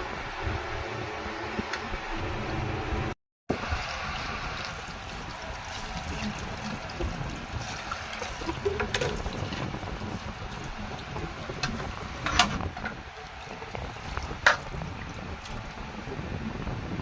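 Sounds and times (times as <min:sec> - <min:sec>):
water running and splashing: 0:03.6 - 0:16.2.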